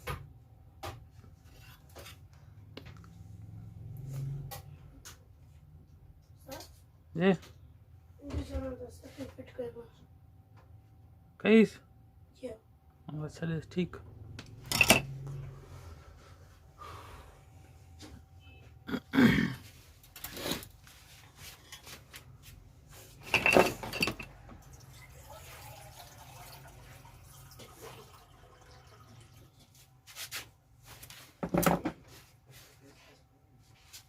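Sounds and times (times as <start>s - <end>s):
tools knocking and scraping: 14.6s - 15.2s, 23.1s - 24.4s.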